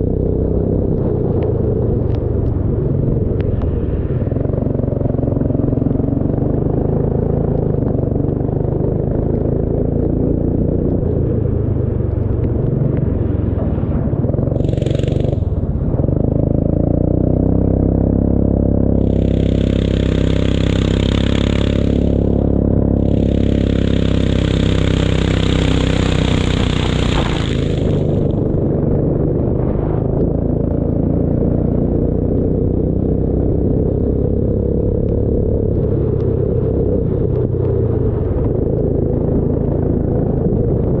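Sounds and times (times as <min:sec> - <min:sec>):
racing engine running hard: 0:12.4 - 0:30.7
hissing noise: 0:14.6 - 0:16.4, 0:18.7 - 0:28.9.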